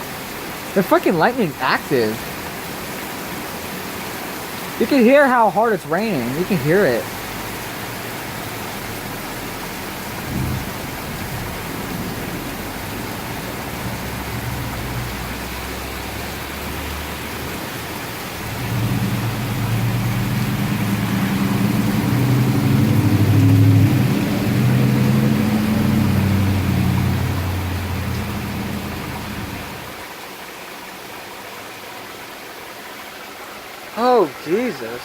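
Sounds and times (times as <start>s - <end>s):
heavy rain pouring: 0.0s - 35.0s
thunder rumbling: 10.2s - 15.2s.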